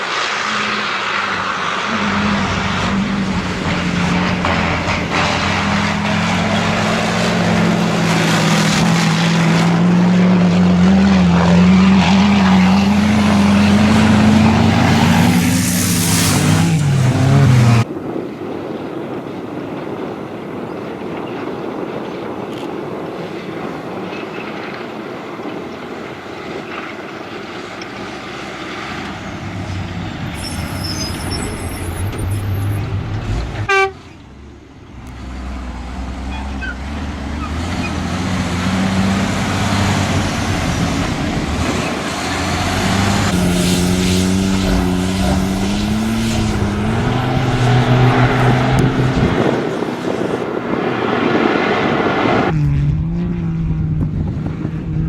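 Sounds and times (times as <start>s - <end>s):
truck diesel engine running hard: 0.0s - 17.9s, 23.5s - 55.0s
wind noise: 0.0s - 33.8s, 37.8s - 55.0s
short horn toot: 33.6s - 34.2s.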